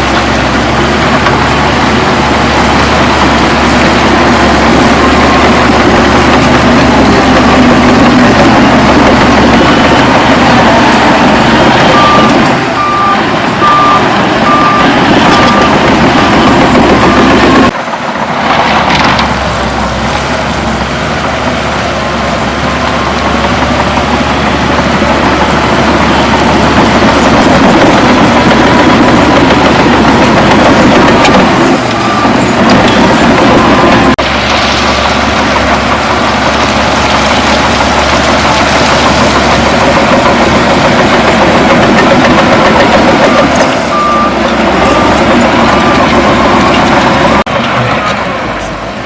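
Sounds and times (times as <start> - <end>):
heavy diesel machinery running: 0.0 - 49.0
reversing alarm beeping: 4.6 - 17.7, 28.7 - 34.2, 41.2 - 47.4.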